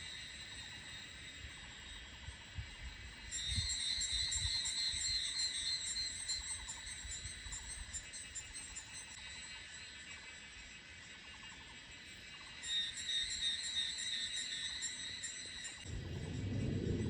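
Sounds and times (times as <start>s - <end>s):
cicada high-pitched pulsing call: 0.0s - 16.4s
insects droning: 0.0s - 17.0s.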